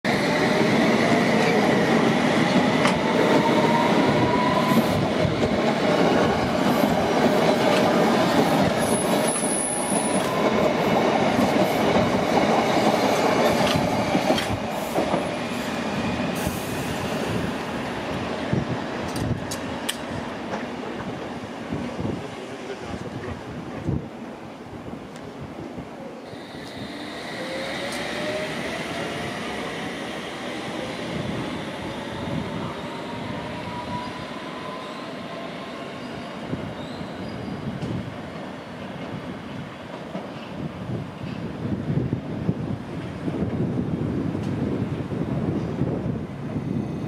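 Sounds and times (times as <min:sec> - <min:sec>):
traction motors whining: 0:26.3 - 0:29.6
high wheel squeal: 0:32.7 - 0:37.7.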